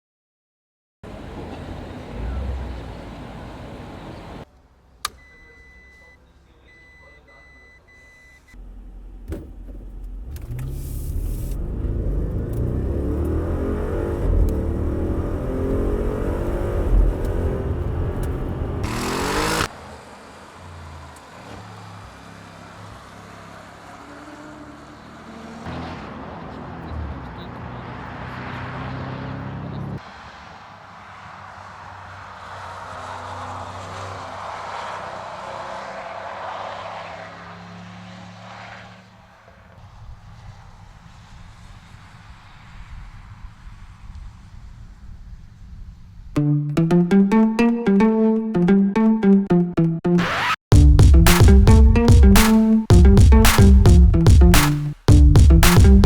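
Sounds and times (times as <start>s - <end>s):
car engine accelerating hard: 1.1s - 4.4s, 10.0s - 30.0s
short beeps: 5.2s - 8.5s.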